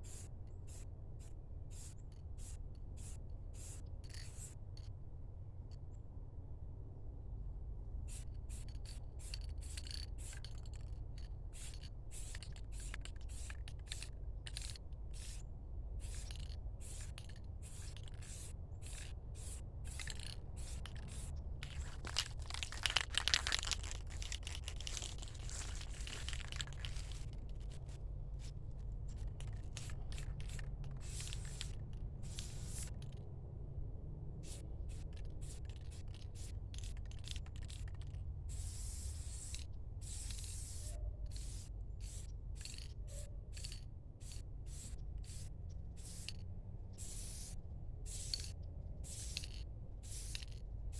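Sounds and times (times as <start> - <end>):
spray paint hissing: 0.0 - 0.8, 1.7 - 4.6, 11.5 - 15.4, 16.0 - 33.0, 34.4 - 37.9, 38.5 - 42.8, 43.5 - 46.4, 47.0 - 50.5
steady low hum: 5.0 - 50.9.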